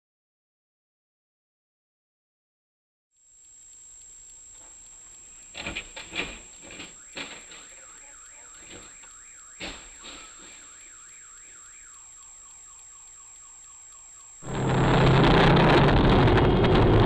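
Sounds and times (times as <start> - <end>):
faint car alarm wailing: 5.4 - 15.3.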